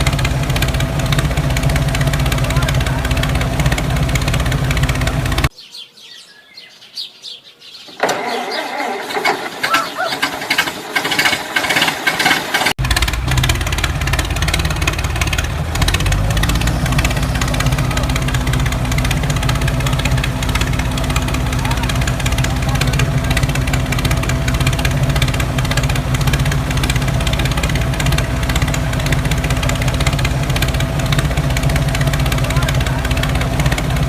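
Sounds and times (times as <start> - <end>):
motor humming: 0.0 - 5.5, 12.4 - 34.0.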